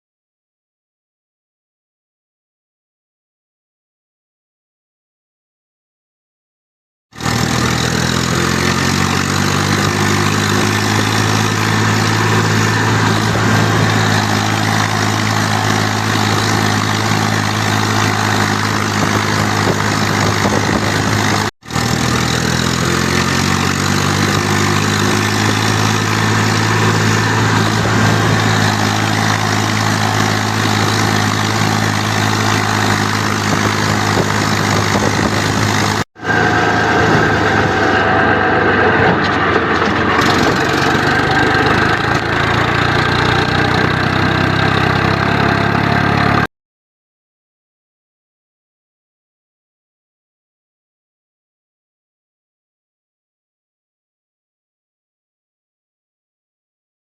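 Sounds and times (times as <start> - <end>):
diesel tractor engine idling: 7.2 - 22.8, 23.5 - 46.5.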